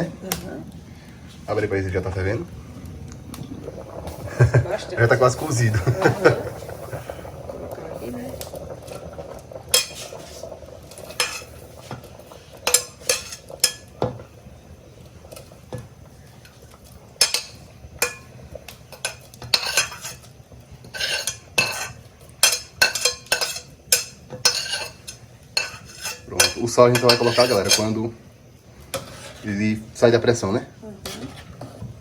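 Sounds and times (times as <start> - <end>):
metal spoon scraping cooking pot: 9.7 - 13.9, 18.9 - 28.0, 28.9 - 29.7, 31.0 - 32.0.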